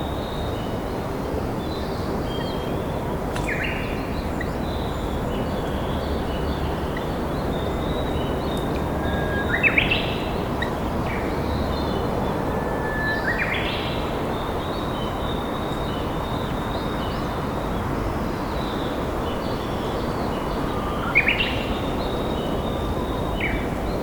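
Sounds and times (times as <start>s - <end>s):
bird singing whistled song: 7.5s - 14.1s.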